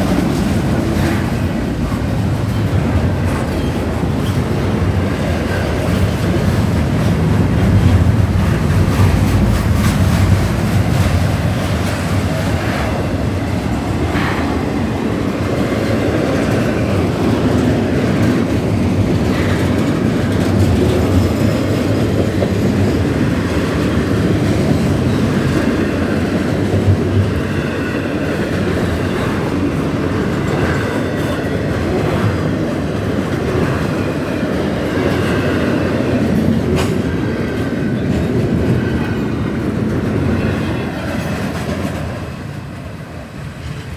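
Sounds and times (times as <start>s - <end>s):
freight train wheels on rails: 0.0s - 43.9s.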